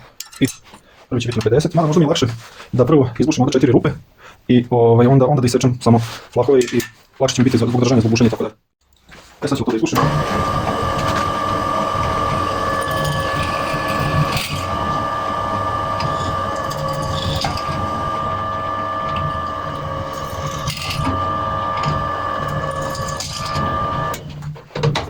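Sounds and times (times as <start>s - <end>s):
drill knocks: 10.0s - 24.3s
electric drill drilling metal: 10.0s - 24.3s.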